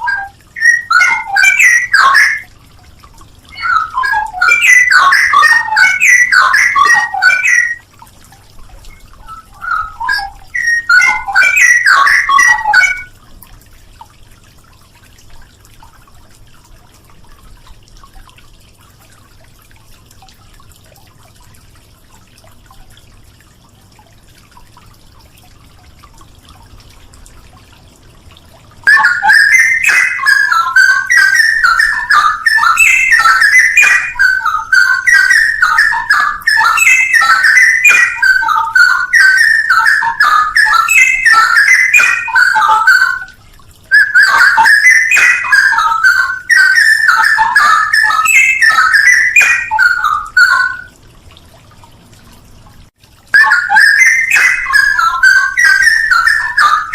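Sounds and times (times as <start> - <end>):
bird singing warbling song: 0.0 - 2.5, 3.5 - 7.8, 8.9 - 13.1, 28.9 - 50.9, 53.4 - 56.9.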